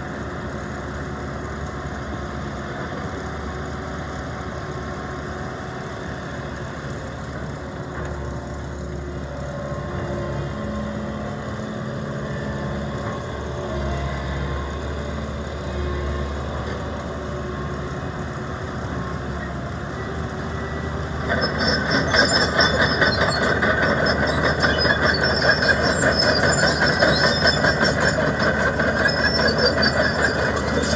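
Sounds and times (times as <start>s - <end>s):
excavator engine running: 0.1s - 30.9s
rattling clatter with squealing: 19.3s - 30.9s.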